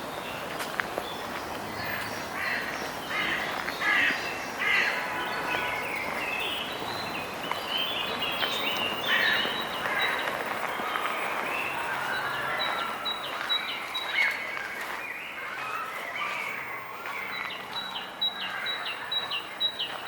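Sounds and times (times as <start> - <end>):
crows cawing: 1.9 - 5.3, 8.8 - 10.4, 18.3 - 19.1.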